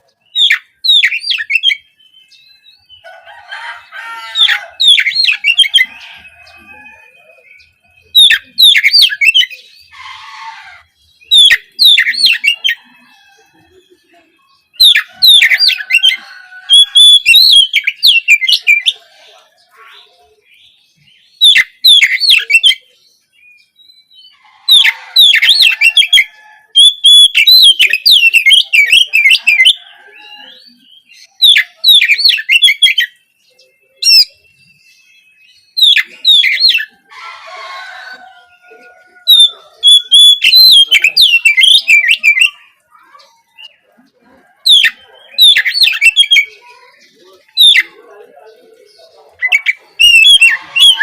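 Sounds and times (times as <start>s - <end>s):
scratchy bird call: 24.4s - 30.6s, 49.3s - 51.0s
bird singing whistled notes: 39.3s - 42.6s, 44.7s - 46.6s, 49.5s - 51.0s.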